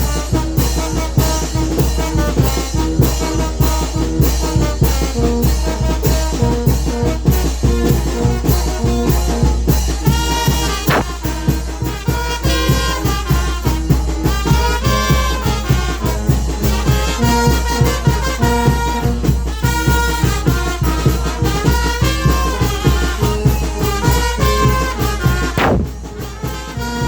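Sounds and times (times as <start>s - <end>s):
wind band playing: 0.0s - 27.0s.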